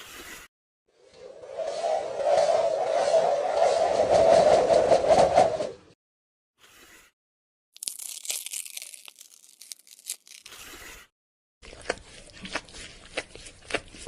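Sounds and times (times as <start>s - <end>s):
crisp clicks: 7.8s - 10.6s
crinkling and tearing: 7.8s - 10.9s.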